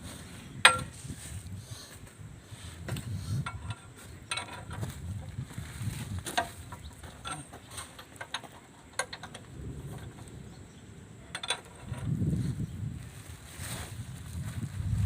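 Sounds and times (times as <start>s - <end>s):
metal parts and tools clicking: 0.6s - 1.0s, 3.3s - 5.4s, 6.2s - 10.5s, 11.2s - 12.2s.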